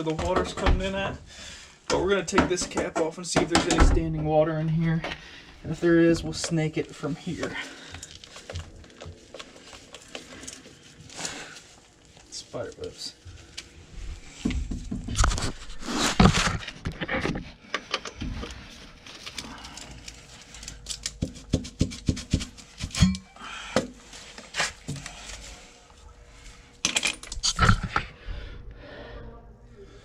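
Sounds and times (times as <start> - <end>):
metal tools clicking and scraping: 22.8 - 23.3, 26.8 - 27.9.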